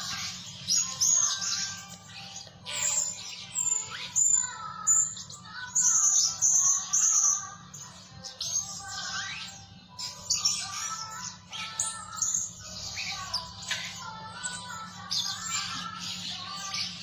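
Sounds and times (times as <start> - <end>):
parrots chirping shrilly: 8.4 - 14.0.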